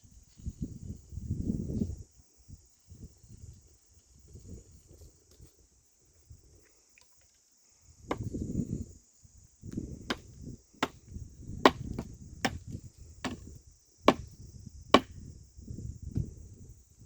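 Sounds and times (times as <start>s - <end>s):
insects trilling: 0.0s - 17.0s
sharp knocks with thuds: 8.1s - 8.4s, 11.6s - 13.5s.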